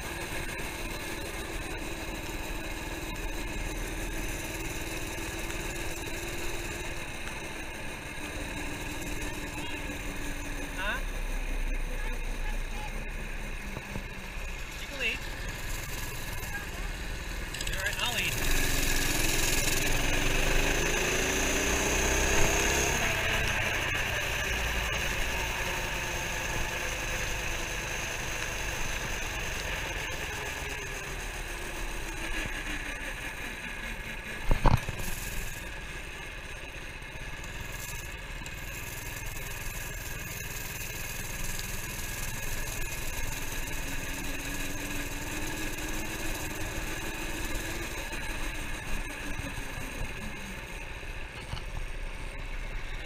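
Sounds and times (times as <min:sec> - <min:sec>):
minibike engine running: 0:00.0 - 0:53.0.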